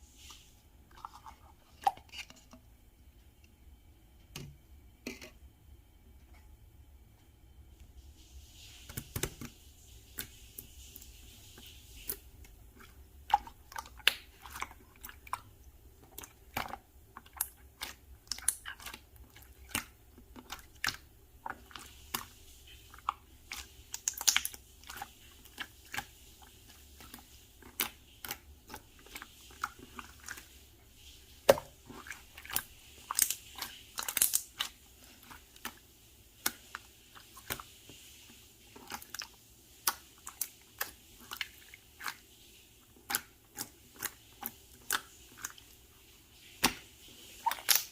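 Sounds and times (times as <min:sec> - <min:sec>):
slime squished by hand: 0:31.5 - 0:35.8, 0:46.6 - 0:47.9.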